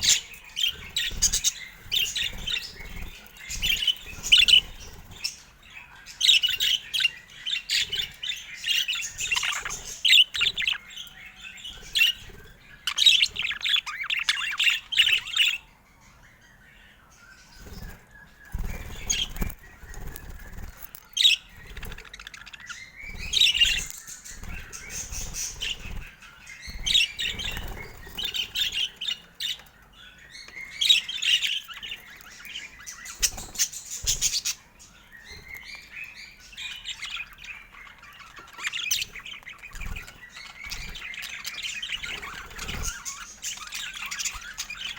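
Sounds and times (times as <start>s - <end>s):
budgerigars chirping and chattering: 0.0s - 44.9s.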